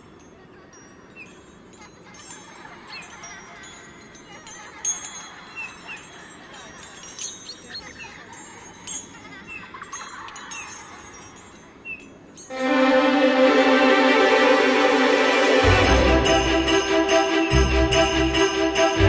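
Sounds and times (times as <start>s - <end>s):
music: 12.5s - 19.0s.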